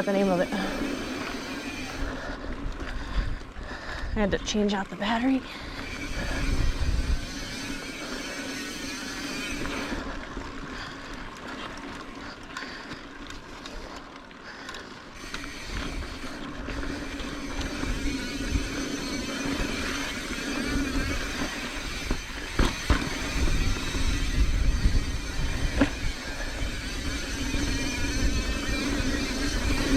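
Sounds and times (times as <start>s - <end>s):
wind buffeting microphone: 0.0s - 8.0s, 15.2s - 29.9s
bike tyre noise on dirt: 0.0s - 29.9s.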